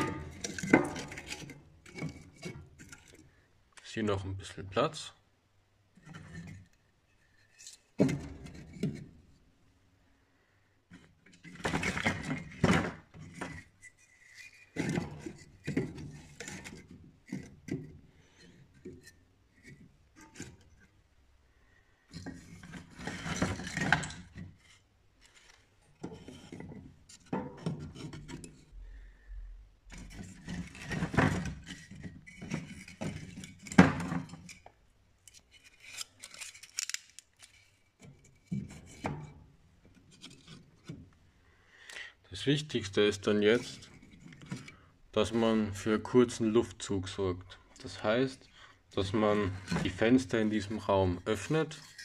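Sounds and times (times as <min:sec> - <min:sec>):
scraping and rustling: 0:00.0 - 0:03.3, 0:22.1 - 0:29.1, 0:29.8 - 0:41.1.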